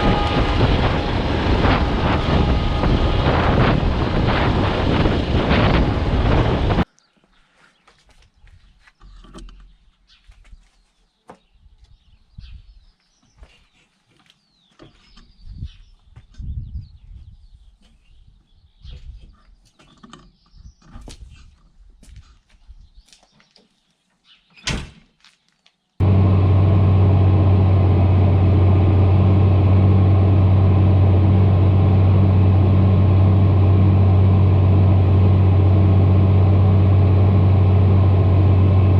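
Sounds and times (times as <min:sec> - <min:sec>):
tractor engine droning: 0:00.0 - 0:06.9, 0:26.0 - 0:38.9
wind buffeting microphone: 0:00.0 - 0:06.9, 0:15.3 - 0:19.4.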